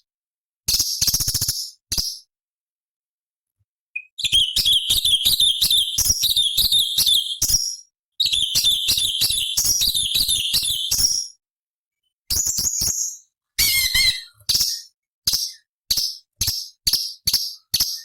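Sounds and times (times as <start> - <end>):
bird singing: 4.0 - 7.6, 8.2 - 11.4, 12.4 - 18.0.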